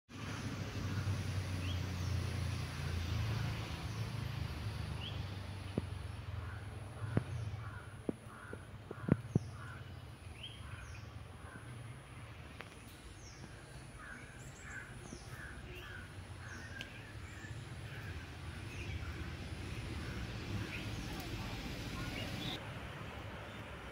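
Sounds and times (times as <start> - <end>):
birds calling: 5.0 - 22.6.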